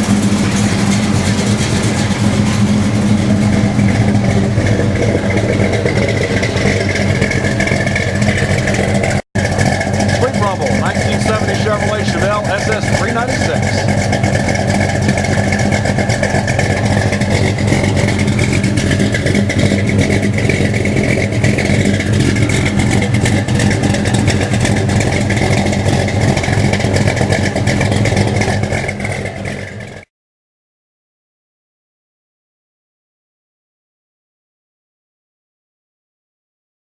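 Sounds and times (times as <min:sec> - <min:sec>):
vvee eight engine idling: 0:00.0 - 0:30.0.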